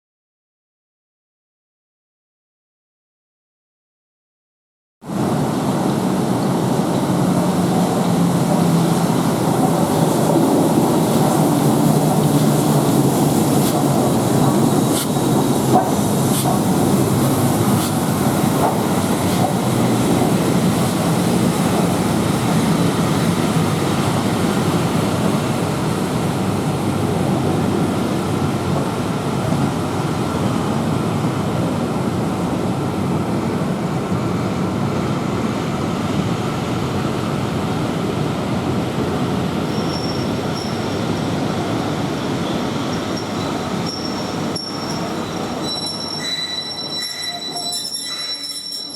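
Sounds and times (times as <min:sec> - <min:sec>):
train rumbling through station: 0:05.0 - 0:48.9
thin high squeal: 0:39.7 - 0:41.0, 0:42.5 - 0:48.9.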